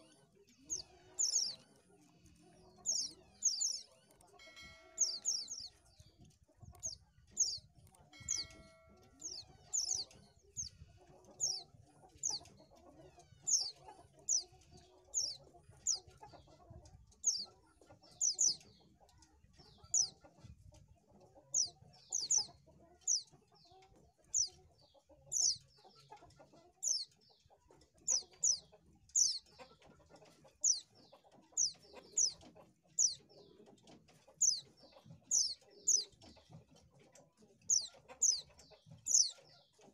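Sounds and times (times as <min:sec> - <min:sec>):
bird chirping high: 0:02.8 - 0:05.9, 0:06.8 - 0:10.8, 0:37.7 - 0:38.5, 0:39.1 - 0:39.3.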